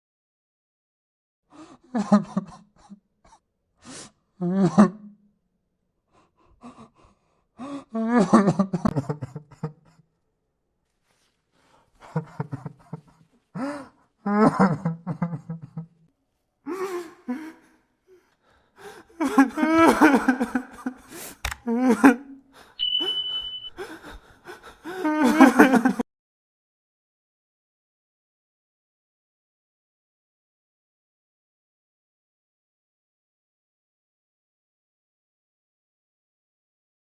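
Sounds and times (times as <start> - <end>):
gasping breaths: 6.1 - 8.0, 16.7 - 19.6
man sobbing: 6.2 - 10.0, 12.0 - 16.0, 16.6 - 26.0.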